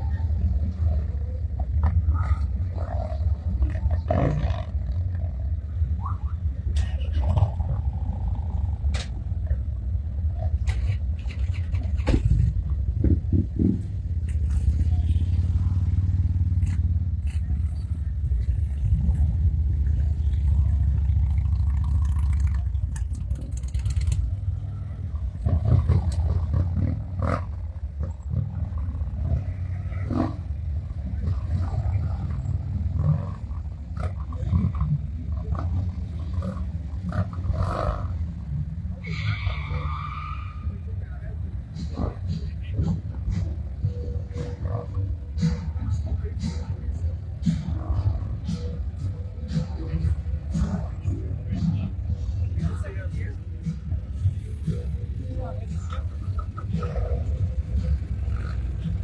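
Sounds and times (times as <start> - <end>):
heavy low rumble: 0.0 - 37.4
motorcycle engines at low speed: 0.0 - 59.0.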